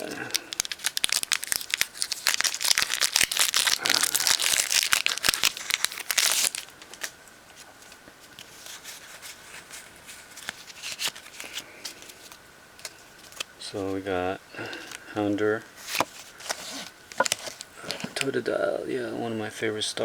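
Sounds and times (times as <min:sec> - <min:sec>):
foil wrapper crinkling and tearing: 0:00.0 - 0:07.1, 0:08.4 - 0:13.5.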